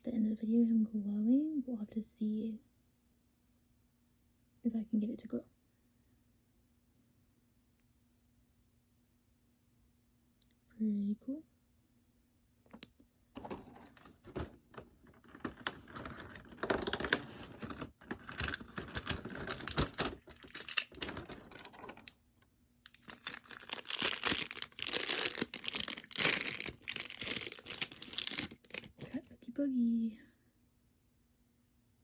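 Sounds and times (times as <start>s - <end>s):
packaging clicking and rustling: 13.4s - 22.1s, 22.9s - 29.3s
packaging crinkling: 15.1s - 22.1s, 22.9s - 29.3s.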